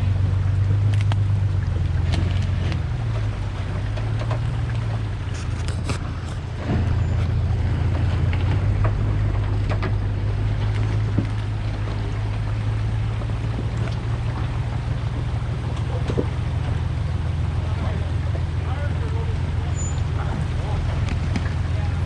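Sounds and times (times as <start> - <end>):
truck engine running: 0.0 - 22.0
knocks and crunches: 0.7 - 12.5.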